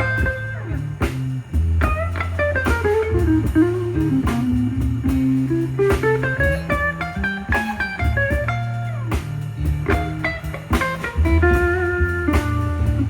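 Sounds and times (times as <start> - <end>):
bass guitar: 0.0 - 13.0
drums: 0.0 - 13.0
lead guitar runs with bent notes: 0.0 - 13.0.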